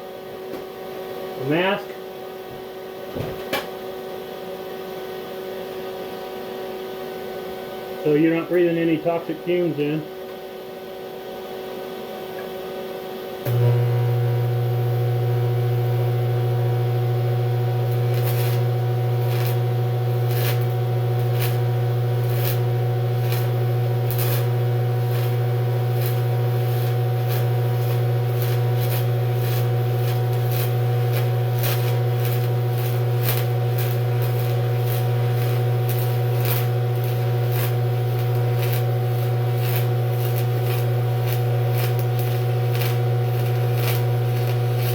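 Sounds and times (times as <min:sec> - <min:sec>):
welding arc buzzing: 0:07.1 - 0:10.0, 0:13.4 - 0:44.9
welding arc crackling: 0:13.4 - 0:44.9.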